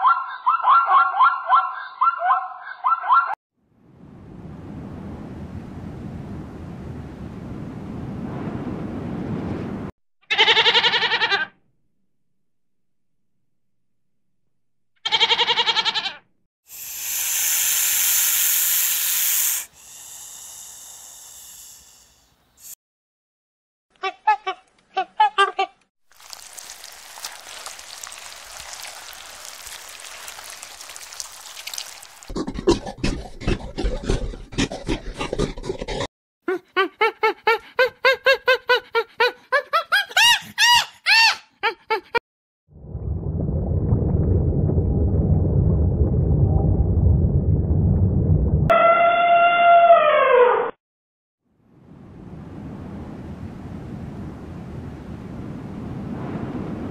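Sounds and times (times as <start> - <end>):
goat bleating: 10.3 - 11.5, 15.0 - 16.2
snake hissing: 16.7 - 22.8.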